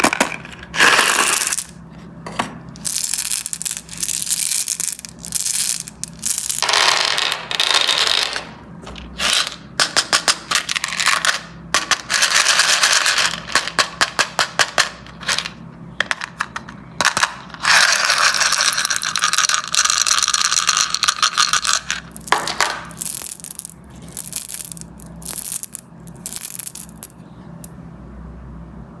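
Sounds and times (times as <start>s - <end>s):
candies pouring and clattering: 0.0s - 1.8s, 2.8s - 8.4s, 17.1s - 27.2s.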